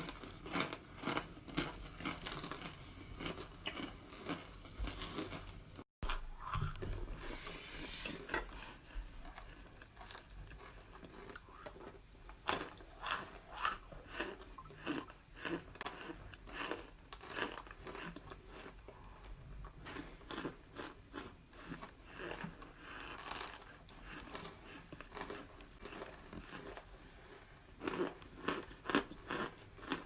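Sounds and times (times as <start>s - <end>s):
dried cornstarch being chewed: 0.0s - 30.0s.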